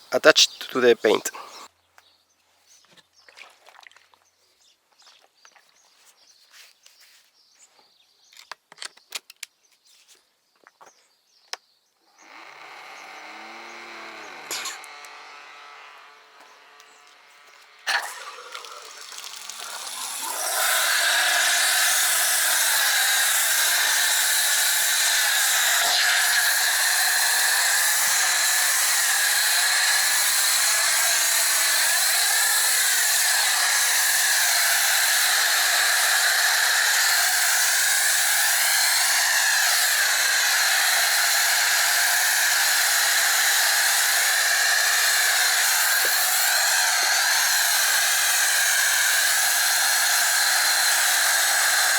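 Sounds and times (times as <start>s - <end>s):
pressure washer spraying foam: 17.9s - 51.9s.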